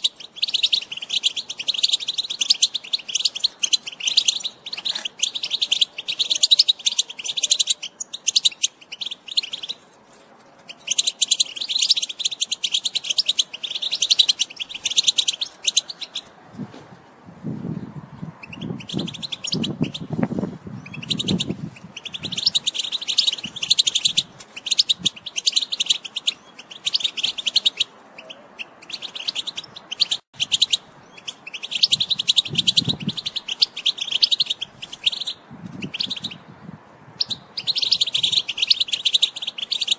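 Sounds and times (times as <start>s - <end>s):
finch twittering song: 0.0s - 9.8s, 10.6s - 16.3s, 17.6s - 39.9s.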